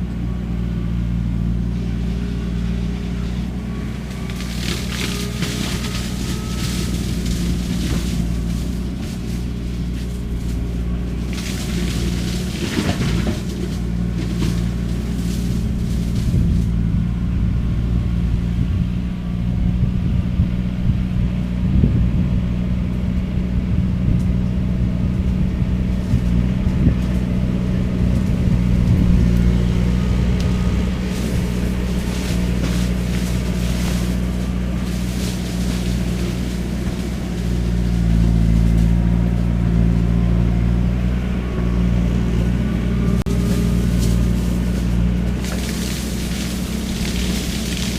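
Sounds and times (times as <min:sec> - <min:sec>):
skid steer engine under load: 0:00.0 - 0:47.9
shredder cracking and clattering: 0:04.3 - 0:09.5, 0:11.2 - 0:15.6, 0:31.1 - 0:38.9, 0:43.4 - 0:47.9.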